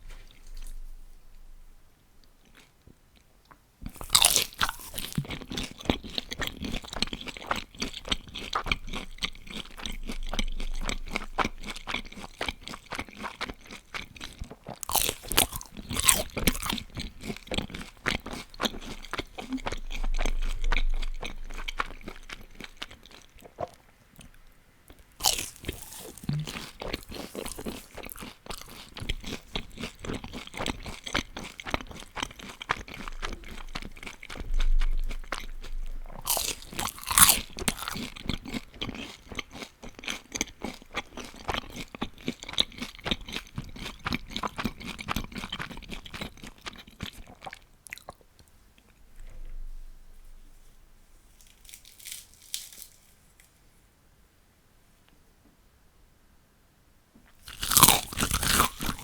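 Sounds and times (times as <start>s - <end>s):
crunching and chewing of fried food: 0.0s - 53.6s, 57.3s - 59.0s.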